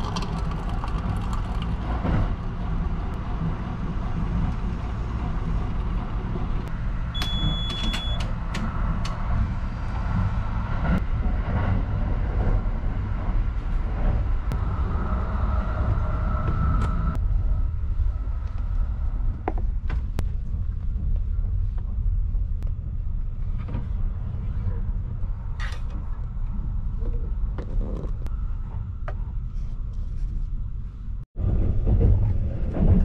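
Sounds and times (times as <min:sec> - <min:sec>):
train running low rumble: 0:00.0 - 0:33.0
high electronic beep: 0:07.2 - 0:08.2.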